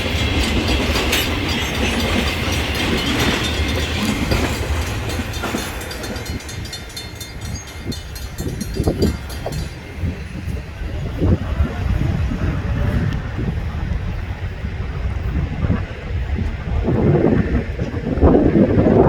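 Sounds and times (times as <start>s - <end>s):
train wheels clicking on rails: 0.0s - 15.2s
train rumble: 0.0s - 19.0s.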